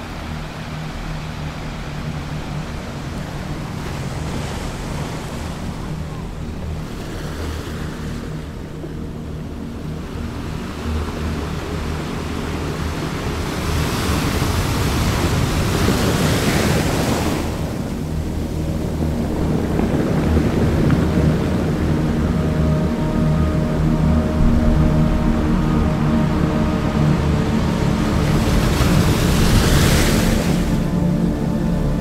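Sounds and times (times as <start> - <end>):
surf washing in: 0.0 - 32.0
steady low hum: 17.0 - 32.0.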